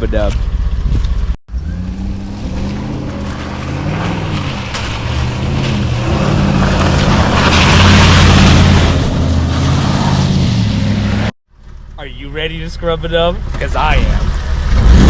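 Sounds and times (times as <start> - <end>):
truck engine driving off: 0.5 - 15.0.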